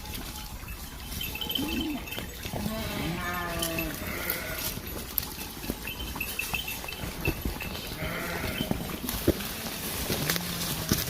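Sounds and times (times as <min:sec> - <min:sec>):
farm animal bleating: 0:01.3 - 0:04.9, 0:06.5 - 0:11.0.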